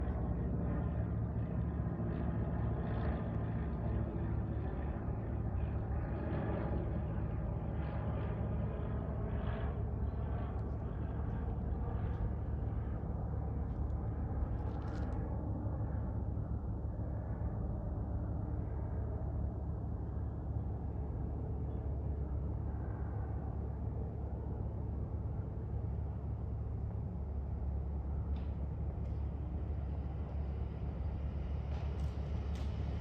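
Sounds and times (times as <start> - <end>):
propeller plane engine droning: 0.0 - 33.0.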